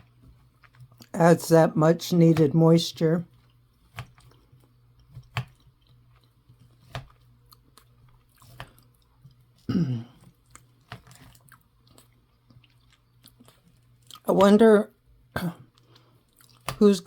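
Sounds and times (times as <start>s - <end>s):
person chewing food: 0.0s - 1.2s, 3.3s - 14.3s, 15.5s - 16.8s.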